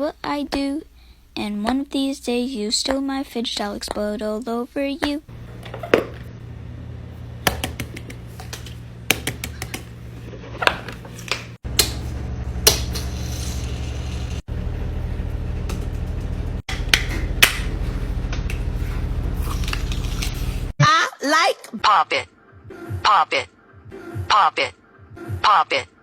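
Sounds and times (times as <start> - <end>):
steady low hum: 5.2 - 20.8.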